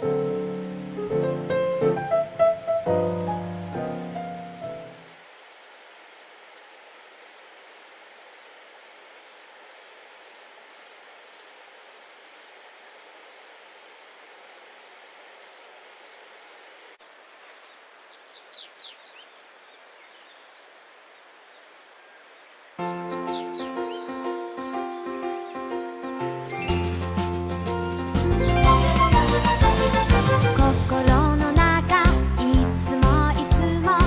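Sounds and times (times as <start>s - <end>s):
steady hiss: 0.0s - 30.6s
bird chirping: 17.5s - 20.7s, 21.5s - 27.0s, 27.7s - 29.8s.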